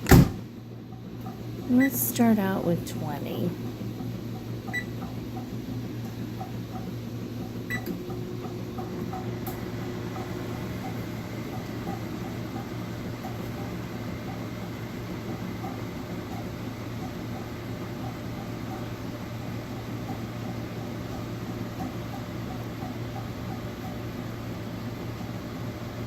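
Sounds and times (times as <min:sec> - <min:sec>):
microwave humming: 0:00.0 - 0:26.0
microwave keypad beeps: 0:04.7 - 0:05.0, 0:07.7 - 0:07.9.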